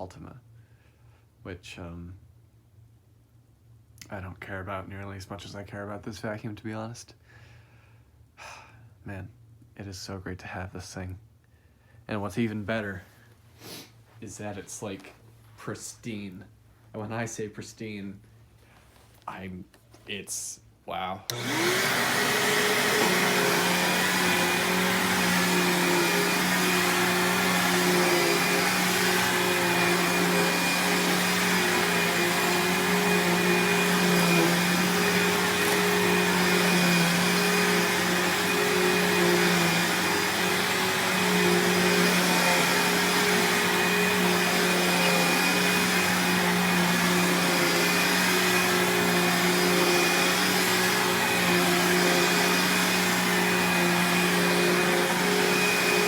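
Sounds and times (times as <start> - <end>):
upright vacuum cleaner running: 21.3 - 56.0.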